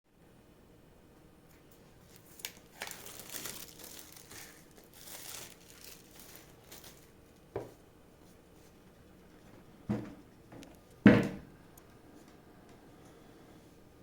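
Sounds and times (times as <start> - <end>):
plastic wrapping crinkling and tearing: 1.7 - 7.3.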